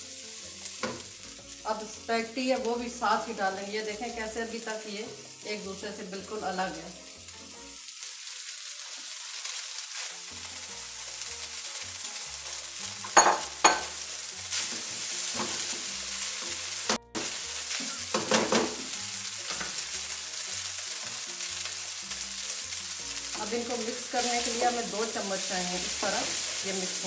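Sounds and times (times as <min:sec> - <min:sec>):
food sizzling in wok: 0:00.0 - 0:27.0
spatula scraping and knocking pan: 0:13.0 - 0:19.8.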